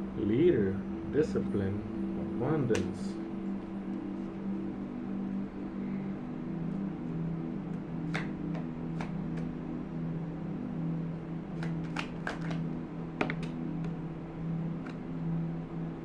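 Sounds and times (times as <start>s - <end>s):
low droning hum: 0.0s - 16.0s
cards snapping and flicking: 2.7s - 2.9s, 8.0s - 9.5s, 11.5s - 14.0s, 14.8s - 15.0s.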